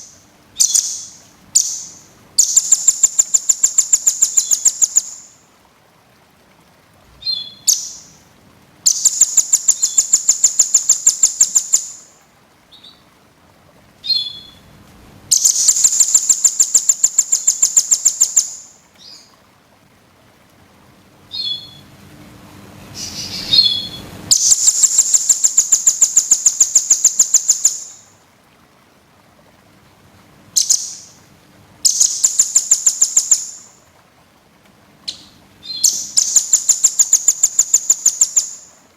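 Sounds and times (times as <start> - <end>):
high bird trills: 0.0 - 5.4, 21.3 - 21.8, 22.9 - 28.0.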